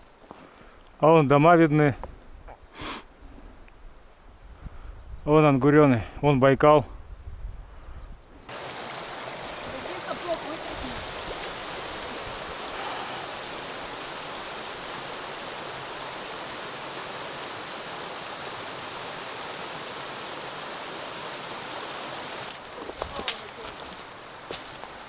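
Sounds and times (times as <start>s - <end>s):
mountain stream rushing: 8.5s - 25.0s.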